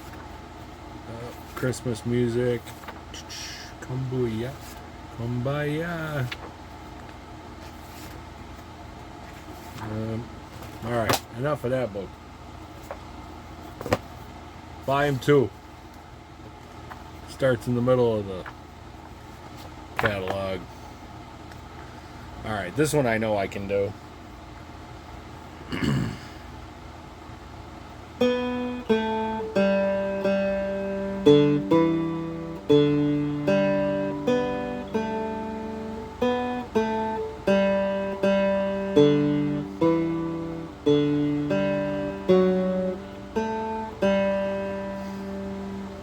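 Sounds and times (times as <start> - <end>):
guitar strings brushed: 28.2 - 46.0
slow picked guitar melody: 28.2 - 46.0.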